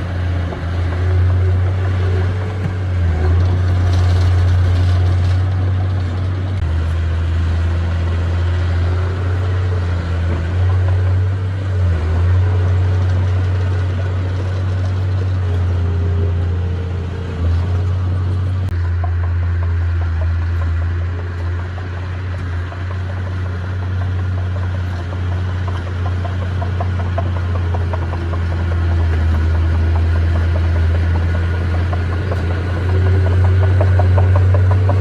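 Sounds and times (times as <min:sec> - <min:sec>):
rapid rattling clatter: 0:00.0 - 0:07.0, 0:17.5 - 0:35.0
heavy diesel engine drone: 0:00.0 - 0:35.0.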